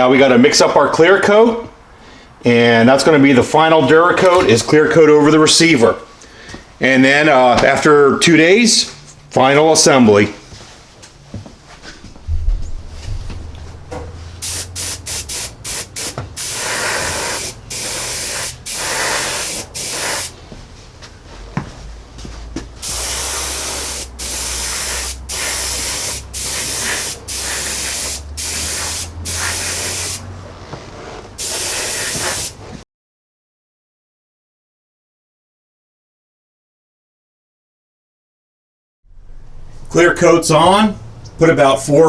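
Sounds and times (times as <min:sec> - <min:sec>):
paint sprayer hissing: 0:14.4 - 0:20.4, 0:22.8 - 0:30.3, 0:31.4 - 0:32.8.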